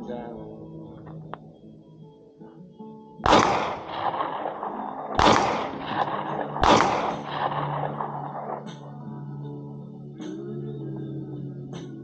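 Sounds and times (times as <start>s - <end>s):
gunshots with echo: 3.2s - 8.9s.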